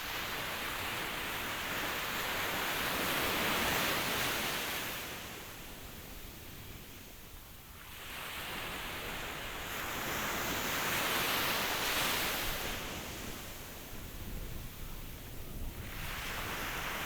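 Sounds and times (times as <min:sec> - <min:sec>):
ocean waves washing ashore: 0:07.9 - 0:17.0.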